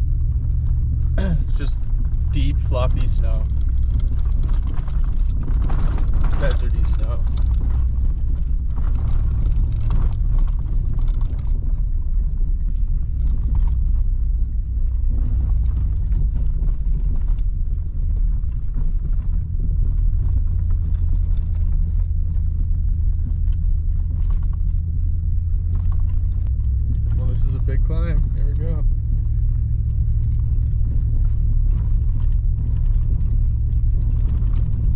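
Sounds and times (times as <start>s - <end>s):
light crackling of snow: 0.0s - 34.9s
truck engine and road rumble: 0.0s - 34.9s.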